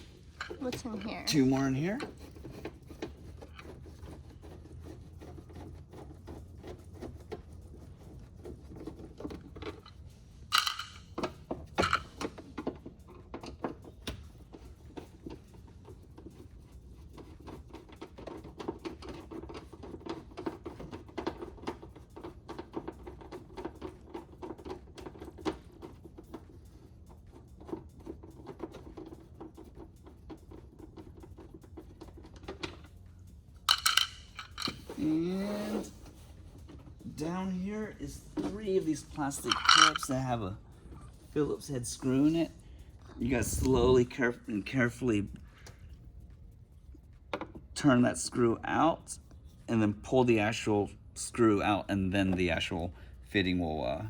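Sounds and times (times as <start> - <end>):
tools clattering: 9.6 - 12.4, 33.6 - 35.0, 38.4 - 40.5
screwdriver clicking and scraping: 33.7 - 35.0.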